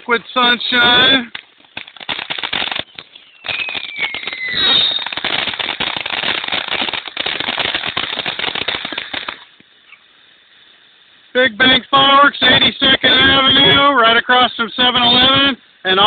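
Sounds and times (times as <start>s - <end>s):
fireworks crackling: 0.0s - 16.0s
falling firework whistle: 0.6s - 9.5s.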